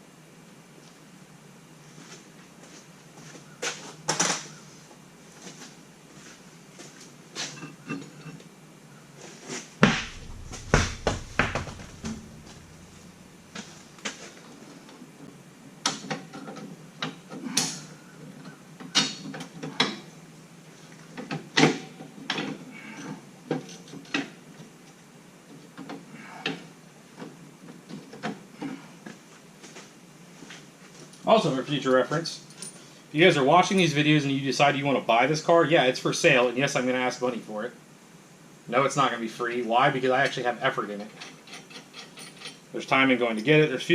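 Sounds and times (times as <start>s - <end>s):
metallic clicks and clanks of tools: 40.3s - 42.7s.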